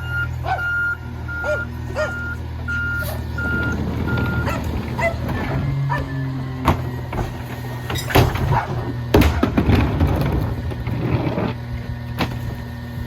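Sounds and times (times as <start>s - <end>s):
reverse alarm beeping: 0.0s - 6.5s
diesel engine running: 0.0s - 13.0s.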